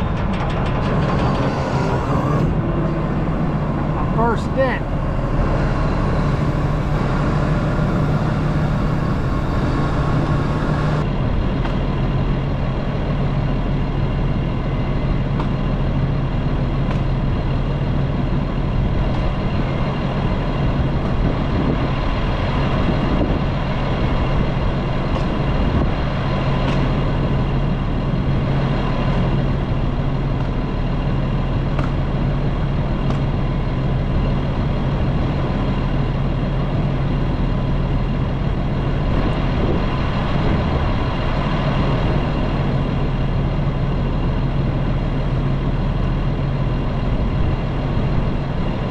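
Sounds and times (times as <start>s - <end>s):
heavy machine engine humming: 0.0s - 11.2s.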